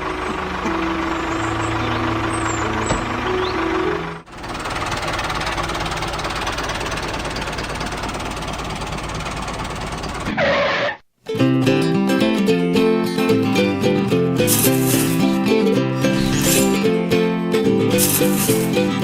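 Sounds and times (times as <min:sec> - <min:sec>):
thresher machine rattling: 0:04.3 - 0:10.3, 0:14.4 - 0:17.1, 0:17.8 - 0:19.0.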